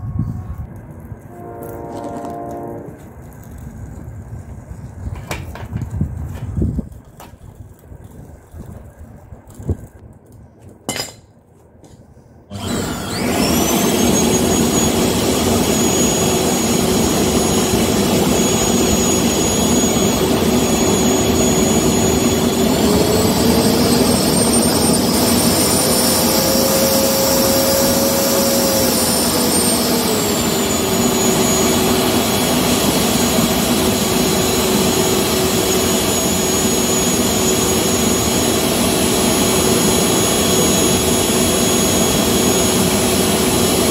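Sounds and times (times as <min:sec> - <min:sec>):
electric air blower whining: 0:01.3 - 0:03.2, 0:12.5 - 0:43.9
stove forced-air burn: 0:02.9 - 0:10.9.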